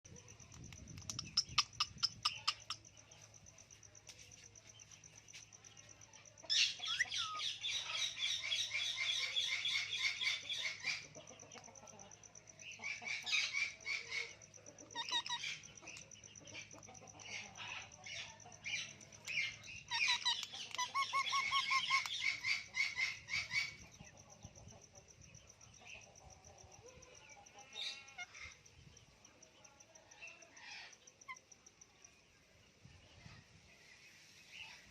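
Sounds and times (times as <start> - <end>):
parrots chattering calls: 1.0 - 2.8, 6.5 - 11.1, 12.8 - 15.7, 16.7 - 23.8.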